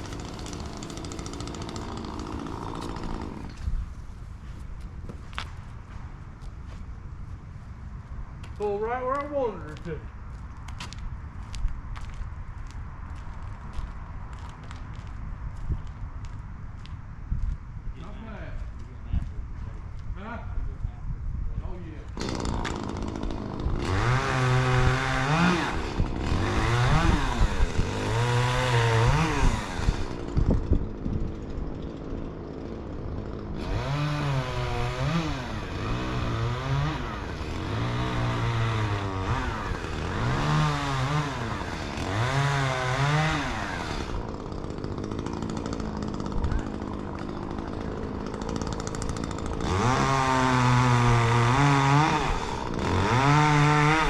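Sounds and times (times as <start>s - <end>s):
chainsaw revving: 0.0s - 3.7s, 22.1s - 54.0s.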